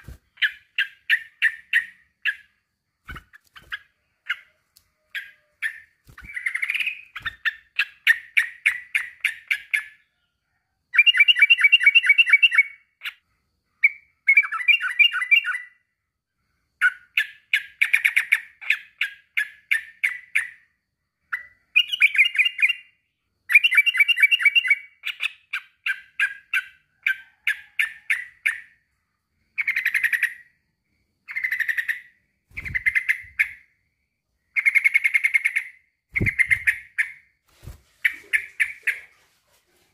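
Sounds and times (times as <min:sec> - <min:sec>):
bulbul singing: 0:34.5 - 0:37.3.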